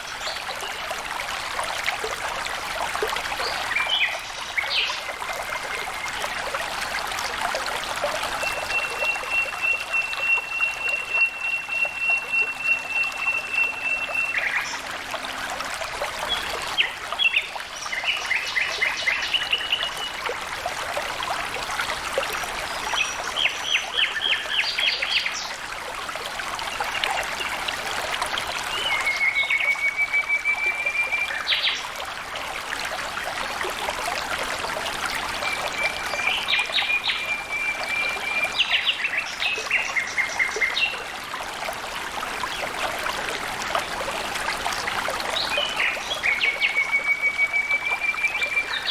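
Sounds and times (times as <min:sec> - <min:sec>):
water trickling: 0:00.0 - 0:48.9.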